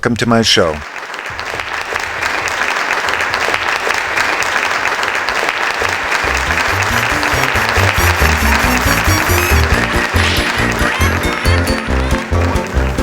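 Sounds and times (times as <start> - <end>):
crowd applauding: 0.7 - 13.0
music with bass line: 6.3 - 13.0.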